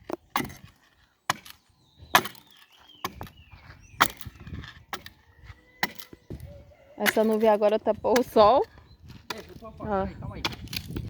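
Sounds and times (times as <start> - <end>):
firewood sticks knocking: 0.0 - 3.4, 4.0 - 5.2, 5.8 - 6.4, 7.0 - 9.7.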